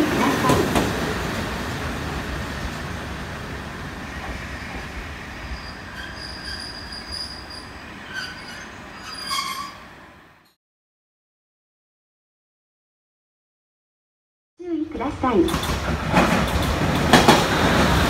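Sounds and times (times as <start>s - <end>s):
diesel railcar rumble: 0.0s - 10.5s, 15.0s - 18.0s
high-pitched wheel squeals: 5.5s - 9.9s.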